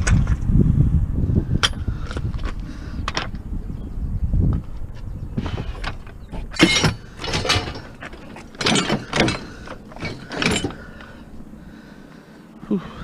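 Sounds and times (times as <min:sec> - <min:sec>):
scrap metal scraping and clunking: 0:05.4 - 0:11.4.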